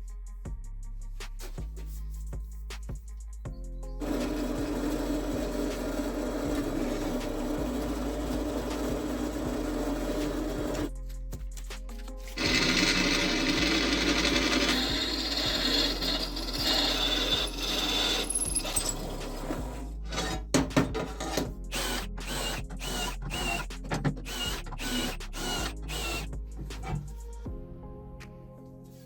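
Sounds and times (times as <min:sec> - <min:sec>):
power tool running: 0:04.0 - 0:10.9, 0:12.4 - 0:27.0.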